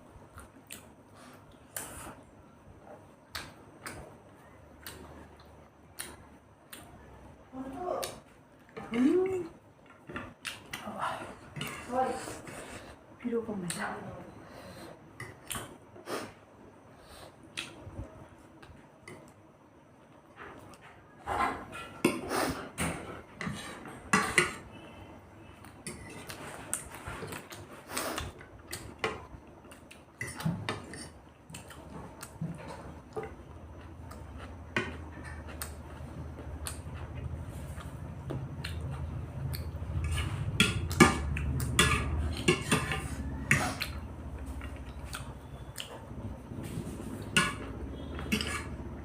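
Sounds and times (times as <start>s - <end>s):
cutlery clinking on plates: 40.0s - 43.9s, 47.2s - 48.8s.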